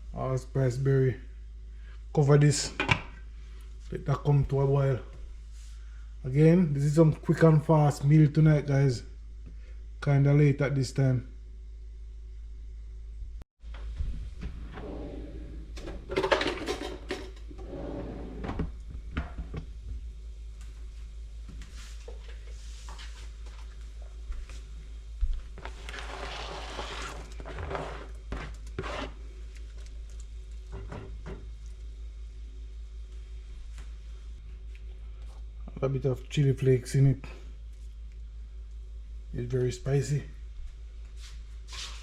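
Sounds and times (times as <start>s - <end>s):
steady low hum: 0.0s - 42.0s
dishes clattering and scraping: 15.8s - 17.6s.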